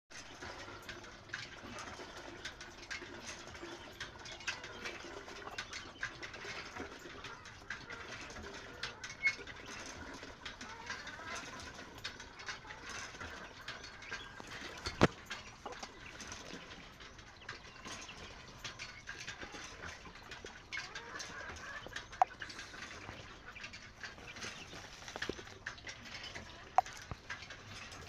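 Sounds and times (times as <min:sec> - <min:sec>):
chickens clucking softly: 0:01.6 - 0:28.0
small clicks and taps: 0:21.2 - 0:28.0.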